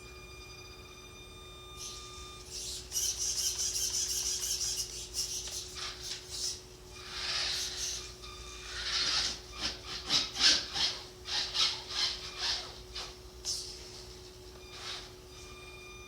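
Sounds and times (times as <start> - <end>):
electric rc truck motor hissing: 1.8 - 9.4.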